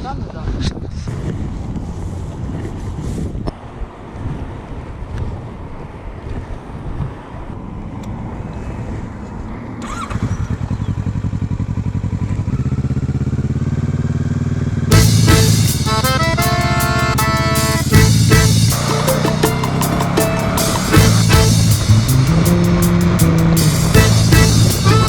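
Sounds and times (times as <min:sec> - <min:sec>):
motorcycle engine starting and idling: 0:09.6 - 0:25.0.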